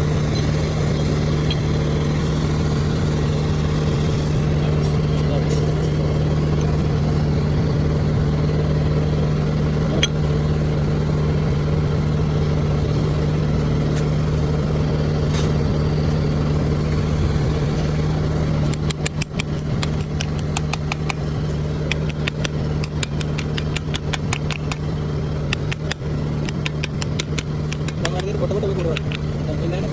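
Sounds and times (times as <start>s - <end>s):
diesel engine idling: 0.0s - 29.9s
sharp clicks: 18.5s - 29.4s.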